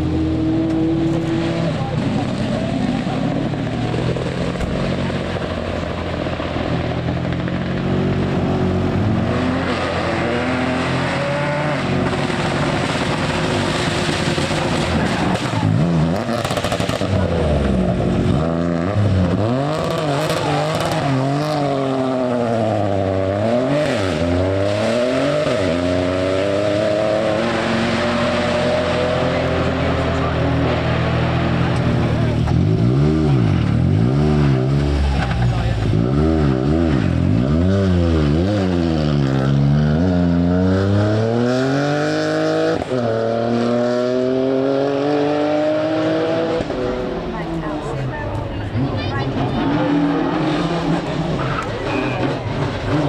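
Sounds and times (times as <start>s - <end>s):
rally car engine revving: 0.0s - 53.0s
steady engine hum: 28.3s - 36.5s.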